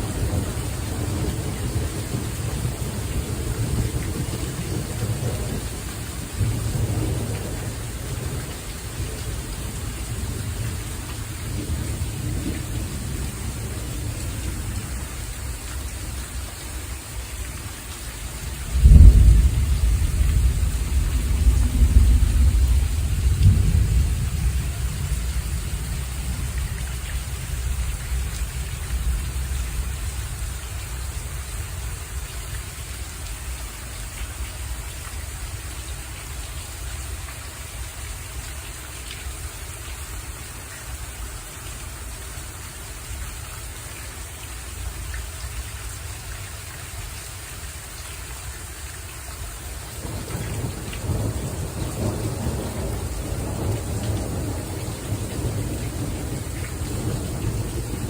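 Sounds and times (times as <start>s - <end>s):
thunder rumbling: 0.0s - 16.1s, 18.5s - 32.2s, 50.0s - 58.0s
rain hiss: 0.0s - 58.0s.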